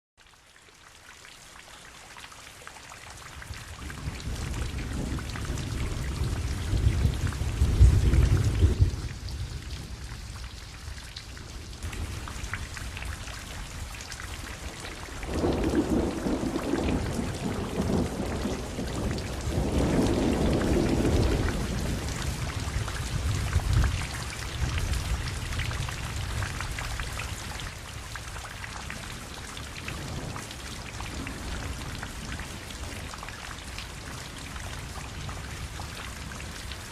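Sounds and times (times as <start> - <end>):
heavy rain pouring: 1.2 - 36.9
thunder rolling: 3.9 - 10.4, 14.6 - 26.5.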